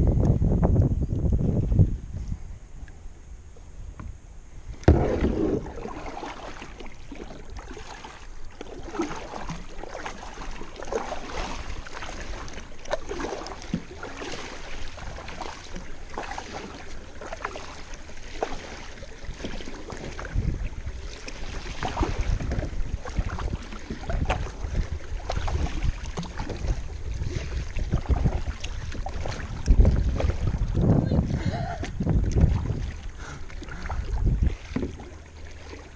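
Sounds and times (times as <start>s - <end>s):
wind buffeting microphone: 0.0s - 6.4s, 19.2s - 35.1s
paddle splashing in water: 4.6s - 35.9s.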